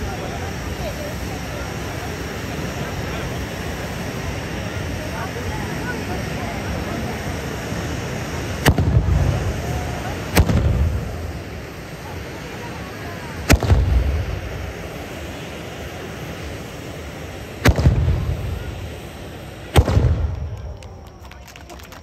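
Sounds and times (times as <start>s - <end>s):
fireworks spraying hiss: 0.0s - 22.0s
loud bangs with rumble: 8.6s - 11.2s, 13.5s - 14.5s, 17.6s - 18.6s, 19.7s - 20.6s.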